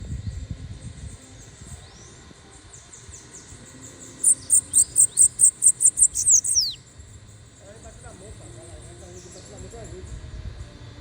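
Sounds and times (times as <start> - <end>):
bird singing high chirps: 1.1 - 6.9.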